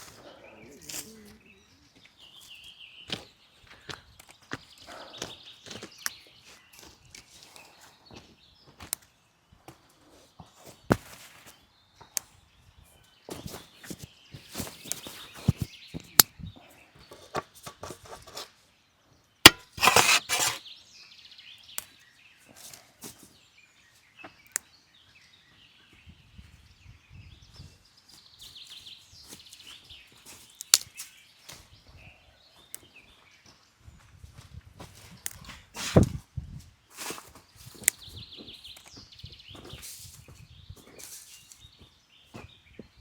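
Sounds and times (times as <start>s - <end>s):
birds chirping faintly: 0.0s - 43.0s
rustling: 19.5s - 20.6s
dry wood snapping: 30.6s - 31.0s.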